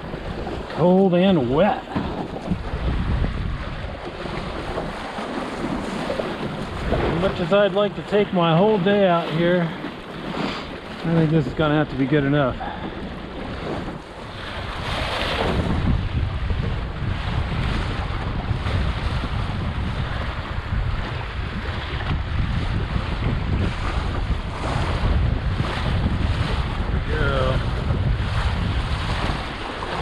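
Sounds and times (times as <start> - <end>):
strong wind buffeting microphone: 0.0 - 30.0
water splashing and rushing: 0.0 - 30.0.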